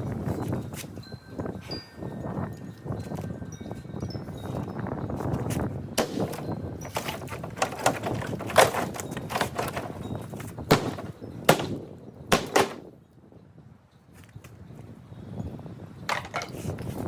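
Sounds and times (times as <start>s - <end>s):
sharp knocks and clatters: 6.0s - 12.9s, 16.1s - 16.6s.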